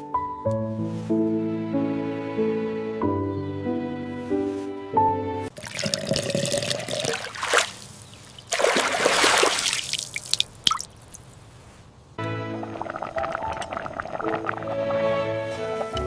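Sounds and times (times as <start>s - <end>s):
liquid pouring and splashing: 5.5s - 11.3s, 12.2s - 16.0s.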